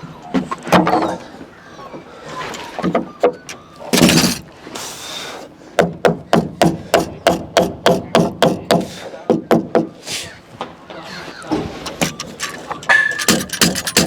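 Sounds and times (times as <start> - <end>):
hammer striking timber: 12.9 - 14.0.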